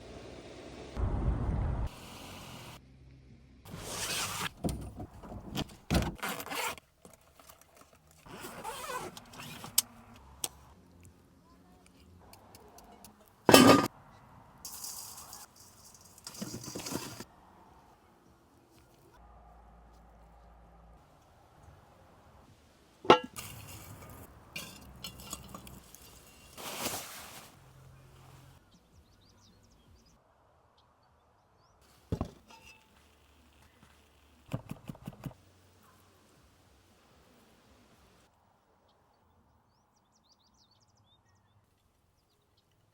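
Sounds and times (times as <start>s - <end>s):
cookware clink: 13.5s - 13.9s, 23.1s - 23.4s
dishes clattering: 13.5s - 13.9s, 23.1s - 23.4s
rustling scrapes: 14.7s - 17.3s, 23.4s - 27.6s.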